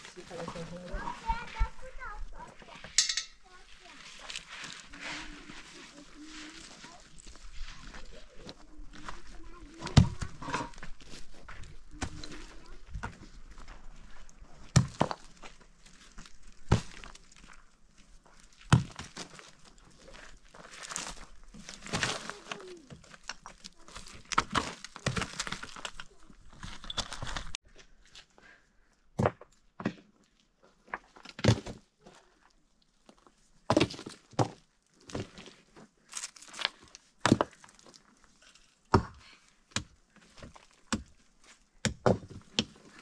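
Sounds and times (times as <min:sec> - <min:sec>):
rustling and scraping: 0:00.0 - 0:28.4.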